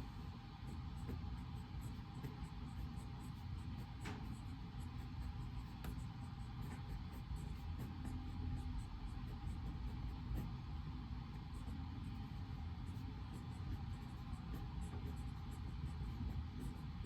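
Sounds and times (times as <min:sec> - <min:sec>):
low rumble and hiss: 0:00.0 - 0:17.0.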